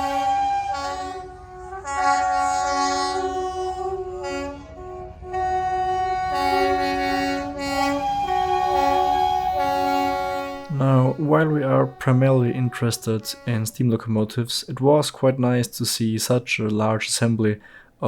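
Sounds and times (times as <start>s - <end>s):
locomotive whistles and horns: 0.0s - 13.8s
low rumble: 3.3s - 10.9s.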